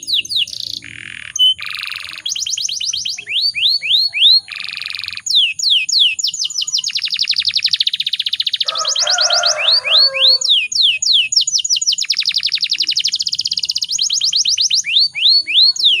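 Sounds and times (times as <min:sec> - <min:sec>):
canary singing: 0:00.0 - 0:16.0.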